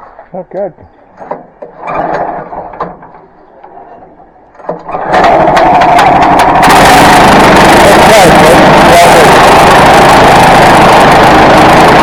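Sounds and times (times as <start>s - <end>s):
small gasoline engine running: 4.9s - 12.0s.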